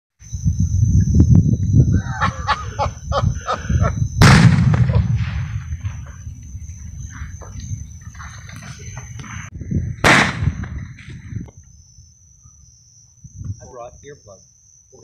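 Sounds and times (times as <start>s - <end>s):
high insect trill: 0.2s - 15.0s
loud firework boom: 4.1s - 6.1s, 10.0s - 11.3s.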